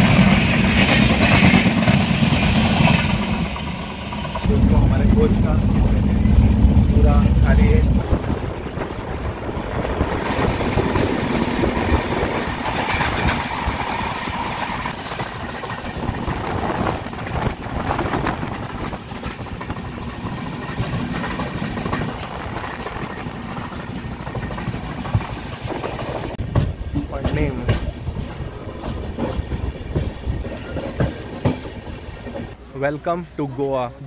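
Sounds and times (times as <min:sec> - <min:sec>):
train wheels rumbling on rails: 0:00.0 - 0:34.0
clattering over rail joints: 0:10.0 - 0:32.6.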